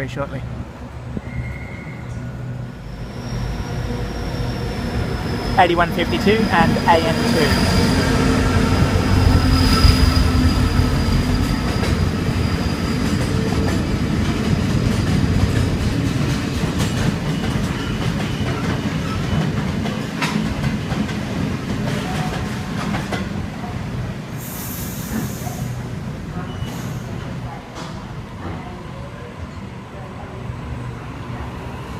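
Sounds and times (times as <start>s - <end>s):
diesel locomotive engine drone: 0.0s - 31.9s
wheel squeal: 1.2s - 5.6s, 26.4s - 27.1s
train wagons rail clatter: 11.1s - 23.4s.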